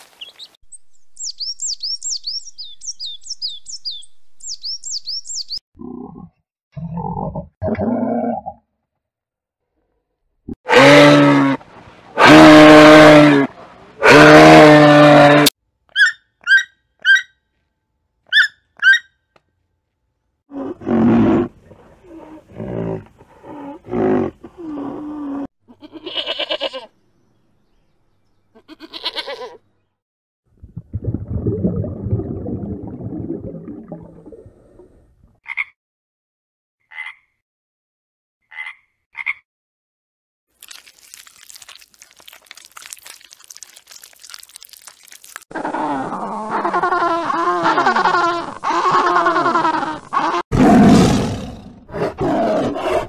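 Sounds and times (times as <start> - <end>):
long low rough roar: 50.5 - 52.8.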